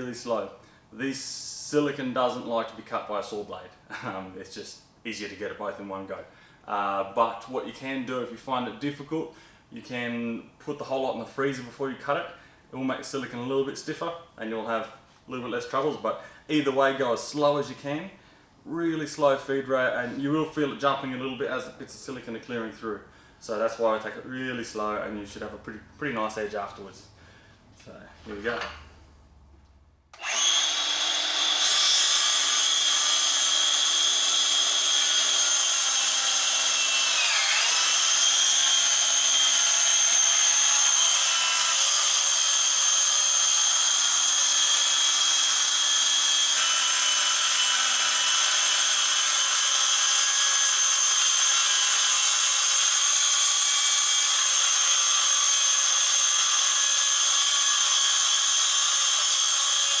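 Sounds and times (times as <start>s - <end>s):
electric saw whining: 30.1s - 60.0s.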